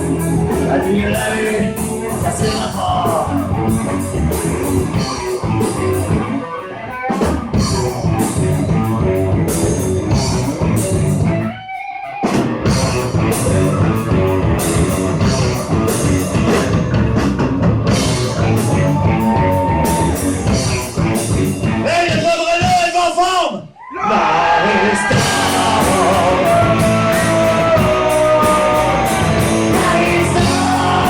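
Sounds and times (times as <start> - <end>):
rock band playing: 0.0 - 23.0, 24.9 - 31.0
electric guitar long note: 25.1 - 31.0.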